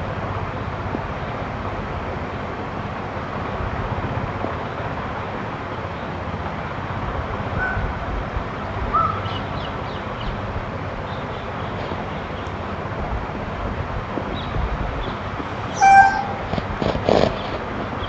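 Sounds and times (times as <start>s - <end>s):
steady outdoor rumble: 0.0s - 18.0s
short bird calls: 8.9s - 9.5s, 15.7s - 16.4s.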